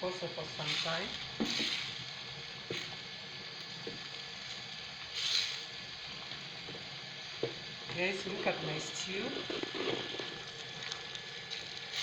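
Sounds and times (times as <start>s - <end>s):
stew sizzling in a pot: 0.0s - 12.0s.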